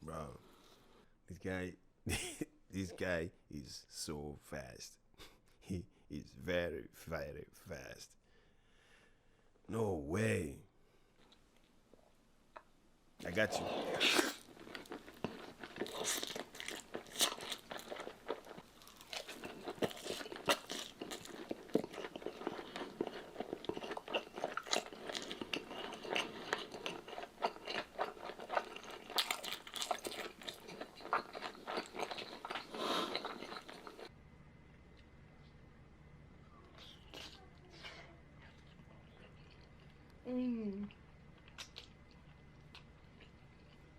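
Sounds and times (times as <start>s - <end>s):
person chewing crunchy food: 13.2s - 34.1s, 36.7s - 40.2s, 40.9s - 43.9s.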